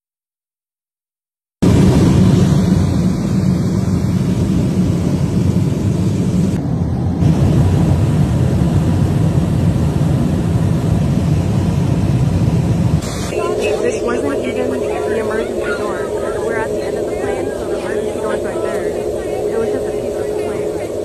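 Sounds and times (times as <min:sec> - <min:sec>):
aircraft engine noise: 0:01.6 - 0:21.0
rush of air in airliner cabin: 0:01.6 - 0:21.0.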